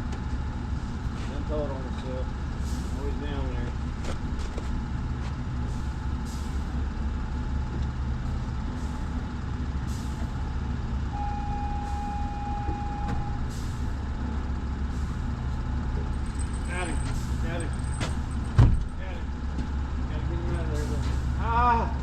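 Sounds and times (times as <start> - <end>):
high beep tone: 11.2 - 13.4.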